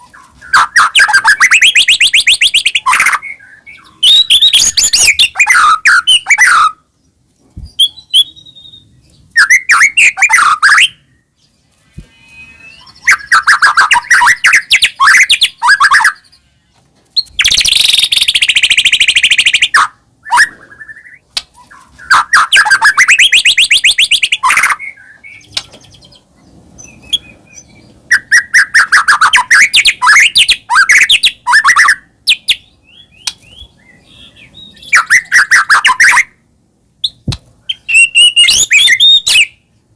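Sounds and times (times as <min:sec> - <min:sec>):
bird singing varied phrases: 0:00.0 - 0:39.8
harsh rasping bird call: 0:11.8 - 0:16.8.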